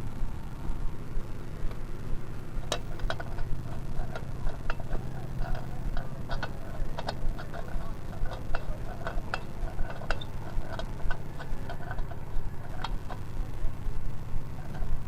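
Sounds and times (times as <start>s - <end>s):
diesel engine chugging: 1.9s - 15.0s
sharp metallic ticks: 2.6s - 15.0s.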